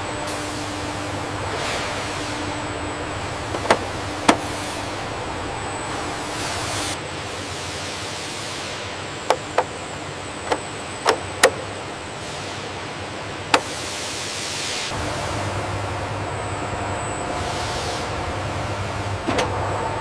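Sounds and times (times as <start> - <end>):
factory background hiss: 0.0 - 10.8, 11.5 - 20.0.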